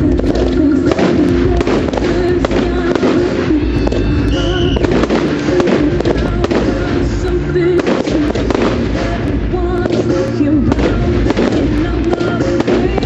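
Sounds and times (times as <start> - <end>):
fireworks bangs and crackling: 0.0 - 13.0
loud music: 0.0 - 13.0
high firework whistle: 2.9 - 5.9.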